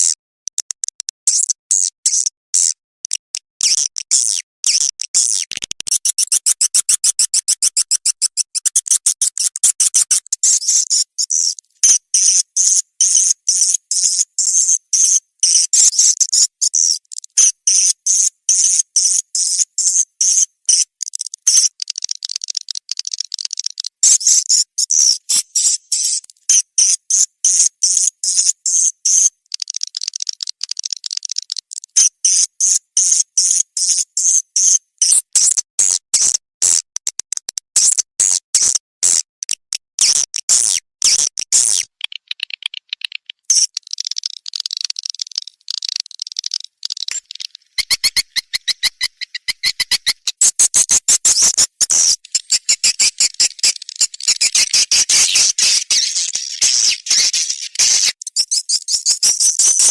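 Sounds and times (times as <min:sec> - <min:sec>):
swiftlet chirps and twitters: 0:03.6 - 0:35.5, 0:40.0 - 0:59.9.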